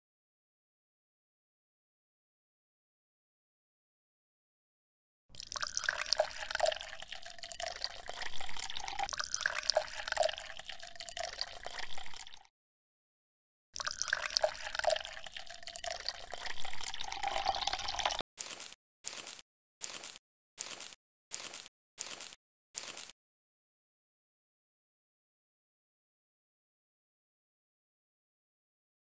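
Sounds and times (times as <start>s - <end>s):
water dripping and trickling: 5.3s - 12.5s, 13.8s - 18.2s.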